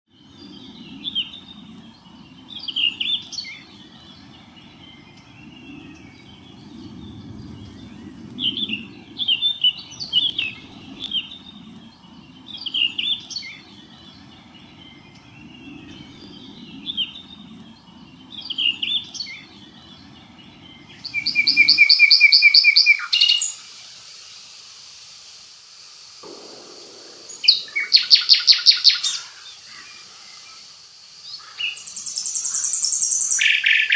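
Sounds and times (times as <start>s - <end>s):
songbirds singing: 0.1s - 23.7s
bird song of fast repeated notes: 0.1s - 24.6s, 26.2s - 33.9s
low steady background noise: 0.1s - 33.9s.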